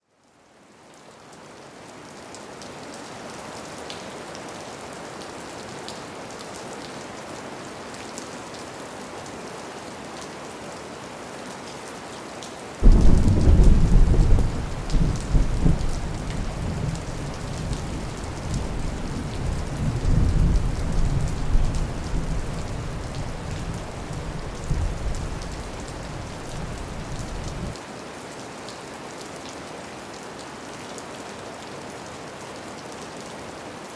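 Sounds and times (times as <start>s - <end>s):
steady rainfall: 0.0s - 33.9s
deep thunder rumble: 12.8s - 27.7s.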